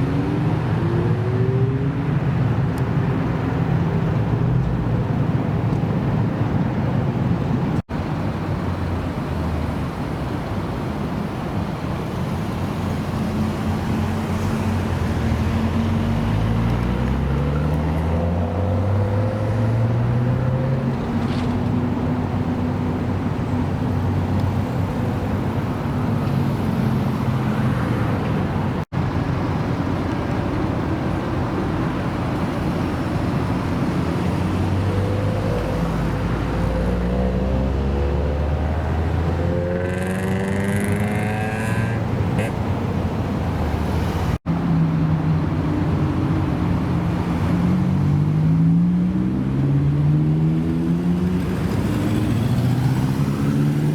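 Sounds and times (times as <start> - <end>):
car engines running: 0.0 - 53.9
car accelerating away: 14.2 - 21.6, 34.3 - 42.0, 47.2 - 53.9.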